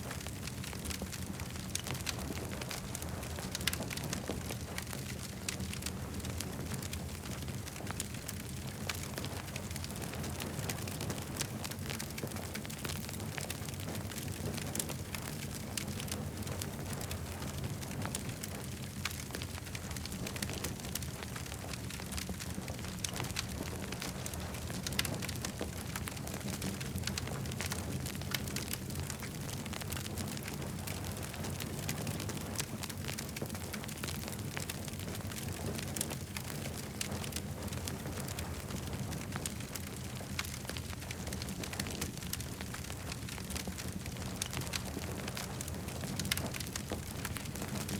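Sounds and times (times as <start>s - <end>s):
campfire crackling: 0.0s - 47.9s.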